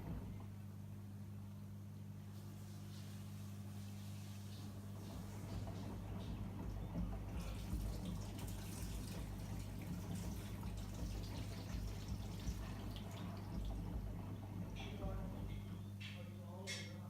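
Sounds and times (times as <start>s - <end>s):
washing machine low hum: 0.0s - 17.0s
water splashing in washing machine drum: 5.0s - 15.6s.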